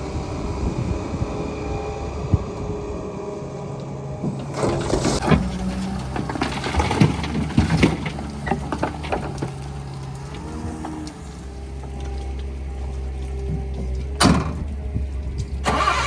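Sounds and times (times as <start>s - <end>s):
diesel engine running: 0.0s - 16.0s
knocks and clatters: 4.2s - 15.6s.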